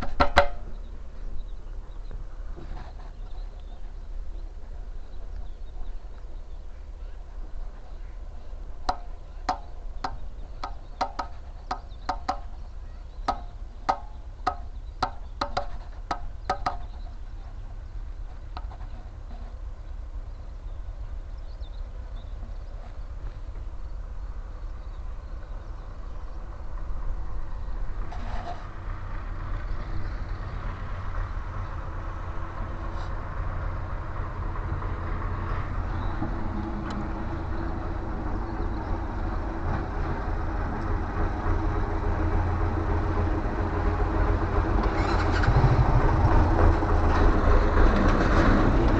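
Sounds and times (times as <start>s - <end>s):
sharp hollow knocks: 0.0s - 0.8s, 8.8s - 12.6s, 13.2s - 17.2s
road and wind noise: 0.0s - 48.9s
steady low rumble: 0.0s - 48.9s.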